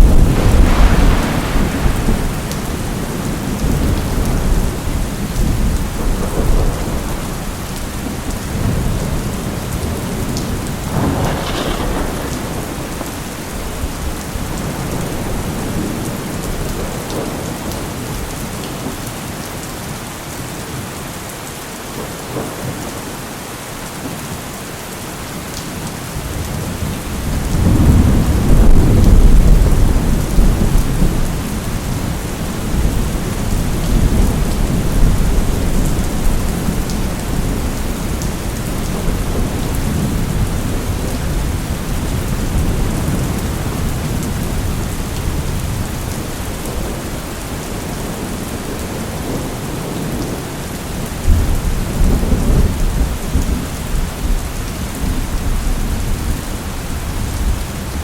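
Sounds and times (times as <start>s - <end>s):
thunder rumbling: 0.0s - 18.5s, 26.4s - 58.0s
heavy rain: 0.0s - 58.0s.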